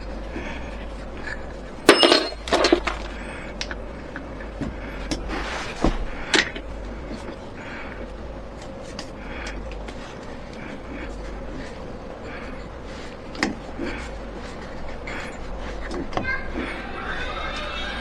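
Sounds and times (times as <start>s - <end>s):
steady low hum: 0.0s - 17.0s
clinks and knocks: 1.9s - 3.0s.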